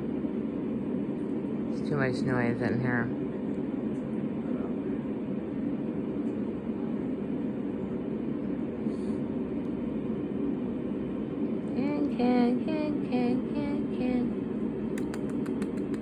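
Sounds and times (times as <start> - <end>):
low rumbling room noise: 0.0 - 16.0.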